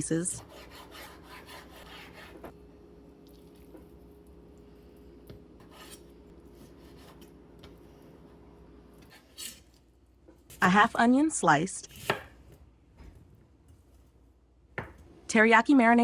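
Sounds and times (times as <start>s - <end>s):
knife cutting on cutting board: 0.4s - 2.5s, 5.6s - 7.3s, 11.9s - 12.4s.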